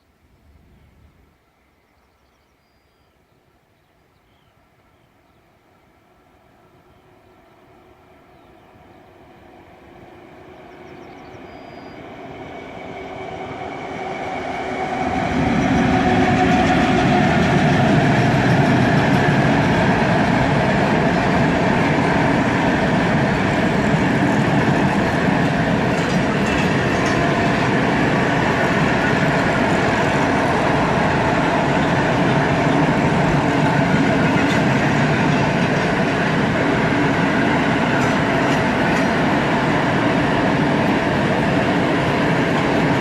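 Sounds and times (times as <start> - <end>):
freight train passing: 4.6 - 43.0
wagons rolling on rails: 23.0 - 36.9.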